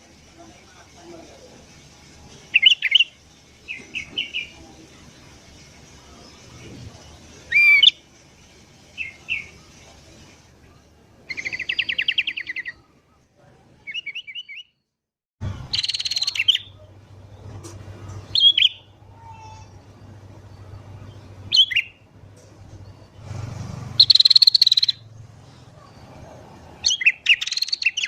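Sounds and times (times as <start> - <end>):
bird whistled calls: 2.5 - 4.6, 7.5 - 8.0, 11.3 - 12.8, 15.7 - 16.8, 18.3 - 19.9, 21.5 - 22.0, 24.0 - 25.1, 26.8 - 28.0
bird chattering trill: 15.7 - 16.8, 18.3 - 20.0, 21.5 - 22.0, 24.0 - 25.0, 26.8 - 28.0.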